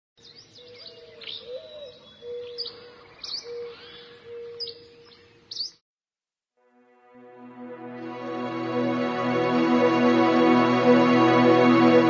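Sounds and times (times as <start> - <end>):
birds chirping: 0.2 - 5.8
steady low tone: 7.0 - 12.0.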